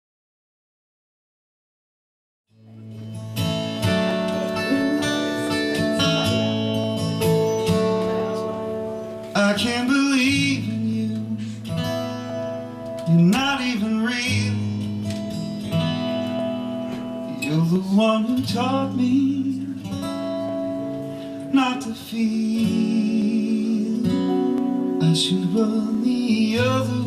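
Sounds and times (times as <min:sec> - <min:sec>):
acoustic guitar chords: 0:02.5 - 0:27.0
wavering notes: 0:03.8 - 0:09.1.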